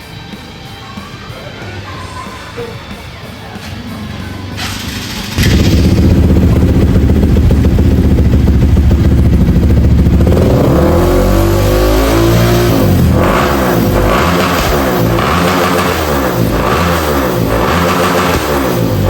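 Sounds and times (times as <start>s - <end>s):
motorcycle engine revving: 3.5s - 19.0s.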